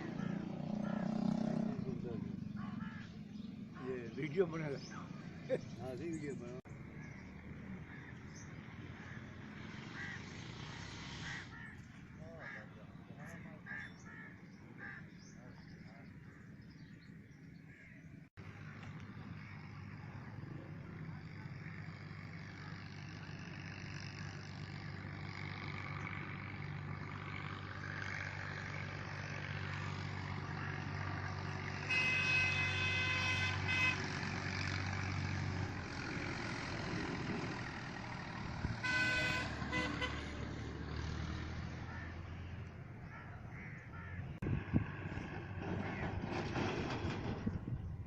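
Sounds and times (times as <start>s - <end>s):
vehicle engine running: 0.0s - 12.6s, 17.7s - 48.0s
vehicle horn blasts: 31.8s - 34.4s, 38.7s - 40.4s.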